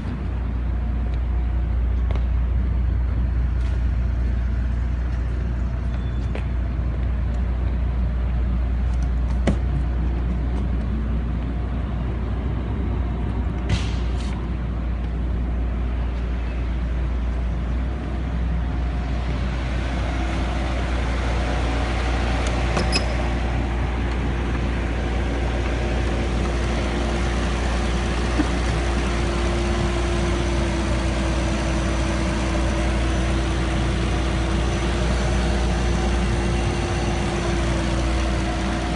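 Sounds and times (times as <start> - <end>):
car engine idling: 14.7 - 38.9.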